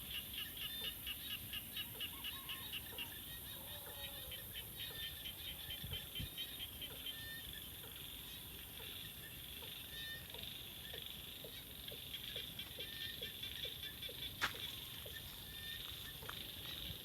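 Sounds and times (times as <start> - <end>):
frogs croaking: 0.0 - 17.0
insects chirring: 4.4 - 17.0.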